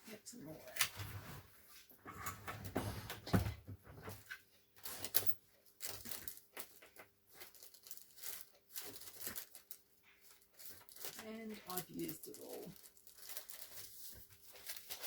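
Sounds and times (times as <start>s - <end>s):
paper rustling and crinkling: 3.9s - 15.0s.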